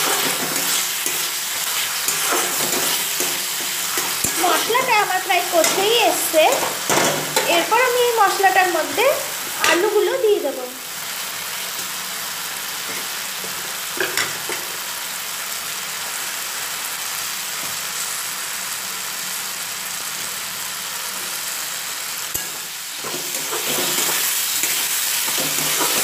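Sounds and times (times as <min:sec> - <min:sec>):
spatula stirring potatoes: 0:00.0 - 0:10.4, 0:22.3 - 0:26.0
spice paste sizzling in oil: 0:00.0 - 0:26.0.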